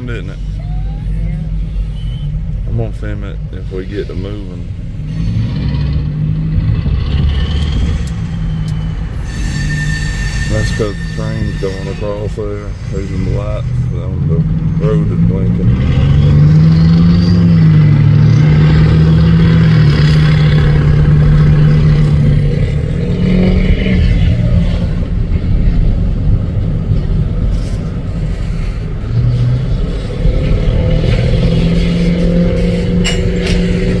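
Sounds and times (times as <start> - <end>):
train drone: 17.1 - 34.0.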